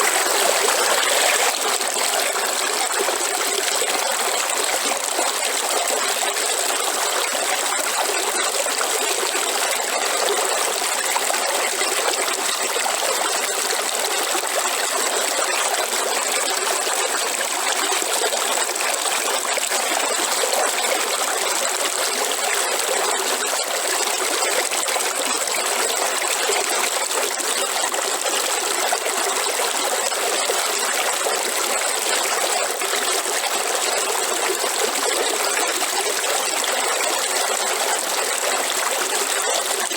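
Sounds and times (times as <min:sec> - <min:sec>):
waterfall rushing and splashing: 0:00.0 - 0:01.9.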